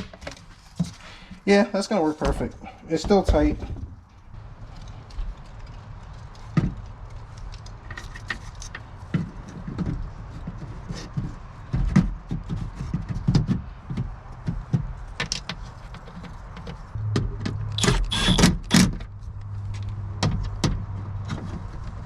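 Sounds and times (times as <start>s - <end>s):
low steady hum: 16.9s - 18.4s.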